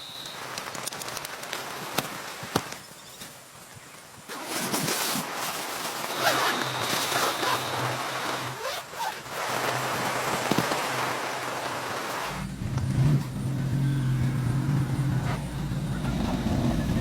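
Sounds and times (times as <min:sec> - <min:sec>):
fabric rasping and rustling: 0:04.3 - 0:12.4.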